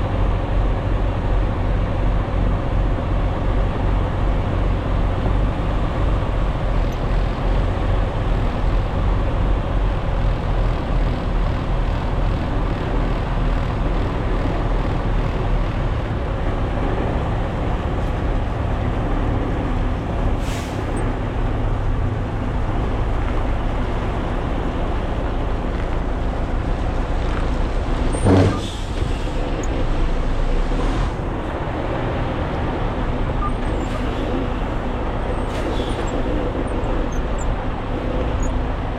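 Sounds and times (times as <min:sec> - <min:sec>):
diesel truck engine rumbling: 0:00.0 - 0:38.9
air brakes hissing: 0:20.4 - 0:21.1, 0:28.1 - 0:29.8, 0:35.3 - 0:37.3.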